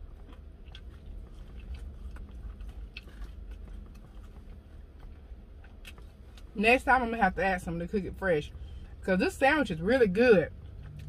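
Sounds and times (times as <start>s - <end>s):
person chewing food: 0.0s - 6.6s, 10.6s - 11.0s.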